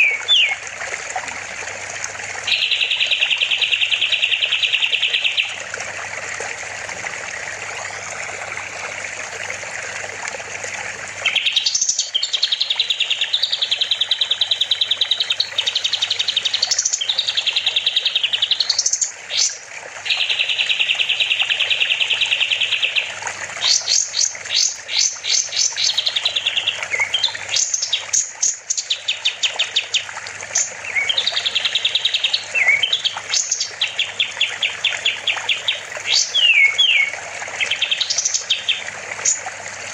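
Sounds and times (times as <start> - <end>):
songbird singing rapid trills: 0.0 - 0.6, 2.5 - 5.6, 11.2 - 39.4.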